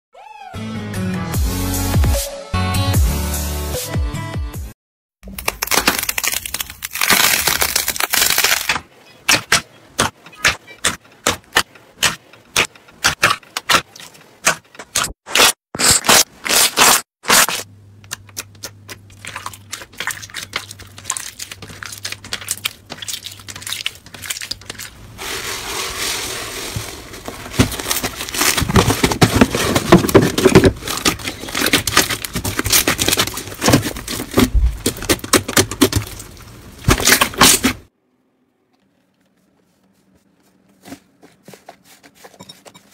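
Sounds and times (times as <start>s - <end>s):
slime crackling and popping: 5.3s - 8.7s.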